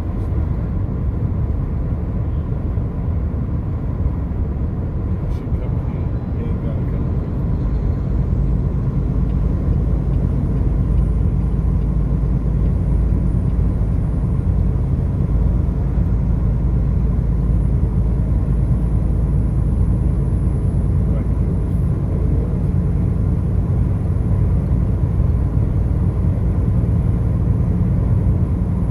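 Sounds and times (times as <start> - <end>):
car road and engine rumble: 0.0 - 28.9.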